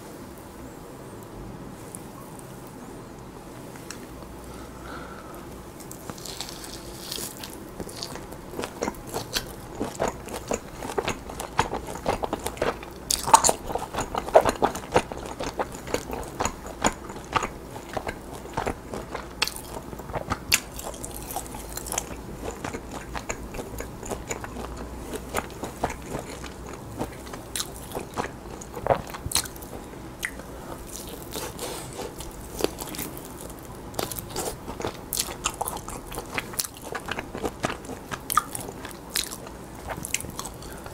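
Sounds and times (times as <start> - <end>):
chewing and biting meat: 5.8 - 40.9.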